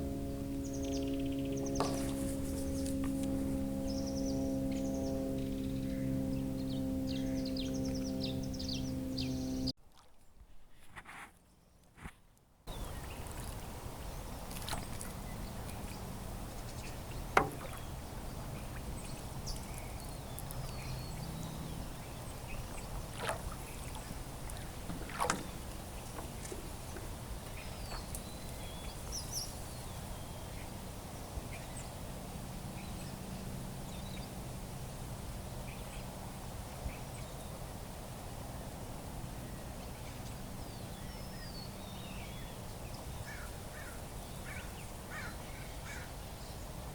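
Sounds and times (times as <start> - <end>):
paddle strokes in water: 1.5 - 5.4, 9.8 - 12.1, 12.7 - 33.2
sharp knocks: 17.4 - 17.8.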